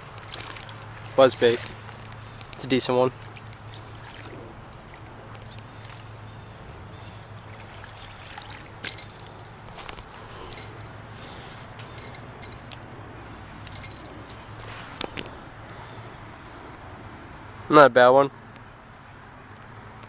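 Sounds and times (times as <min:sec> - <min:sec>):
short water splashes: 0:00.0 - 0:10.7
low steady hum: 0:00.0 - 0:17.3
rattles: 0:08.8 - 0:10.9, 0:11.8 - 0:12.8, 0:13.6 - 0:14.8.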